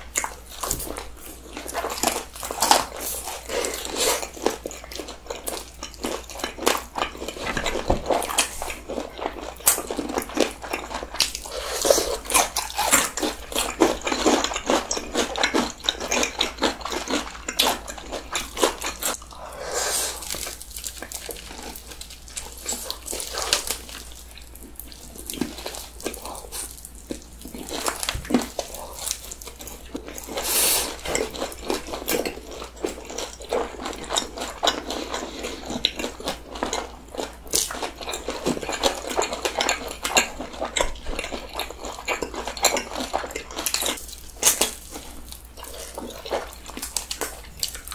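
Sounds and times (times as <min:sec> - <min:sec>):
crunching bites and chewing: 0:00.0 - 0:19.4, 0:20.0 - 0:47.9.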